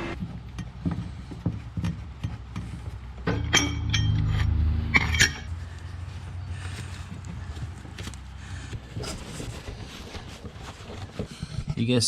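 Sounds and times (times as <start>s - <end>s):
metal tools clinking: 2.2s - 5.5s
low rumbling scrape: 3.7s - 7.8s.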